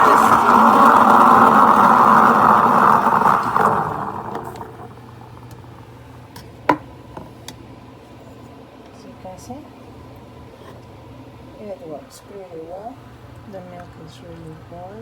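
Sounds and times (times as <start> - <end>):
steam wand frothing milk: 0.0 - 5.8.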